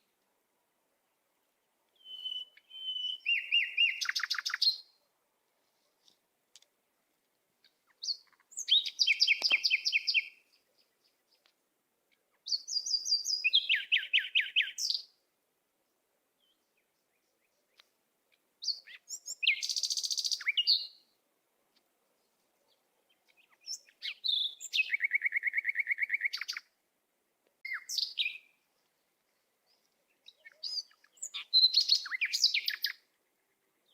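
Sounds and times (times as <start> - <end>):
songbird singing high notes: 2.0 - 4.9, 18.6 - 21.0, 27.6 - 28.5, 30.3 - 33.0.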